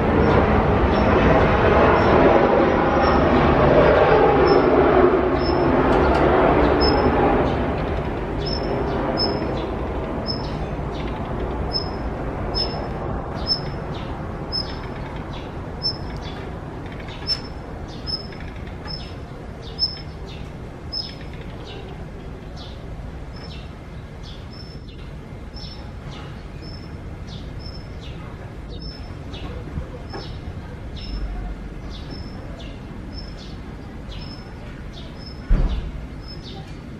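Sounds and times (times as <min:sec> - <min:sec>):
steady background noise: 0:00.0 - 0:36.9.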